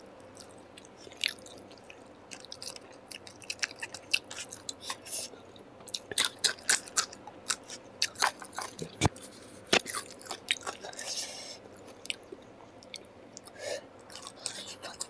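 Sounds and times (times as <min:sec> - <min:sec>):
chewing and biting food: 0:00.3 - 0:15.0.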